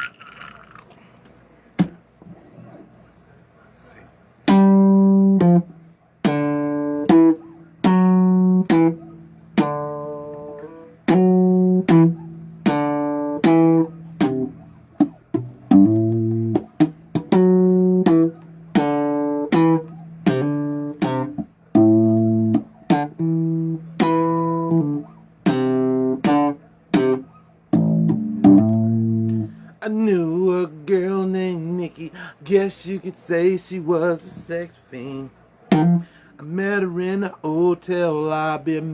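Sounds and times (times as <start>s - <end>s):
bass guitar riff: 4.5s - 29.8s, 35.7s - 36.2s.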